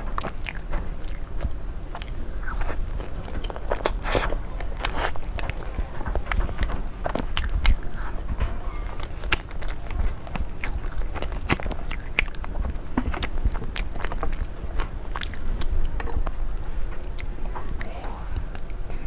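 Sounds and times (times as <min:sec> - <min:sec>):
low rumble: 0:00.0 - 0:19.0
crisp bites and chewing: 0:00.1 - 0:08.2, 0:08.8 - 0:16.4.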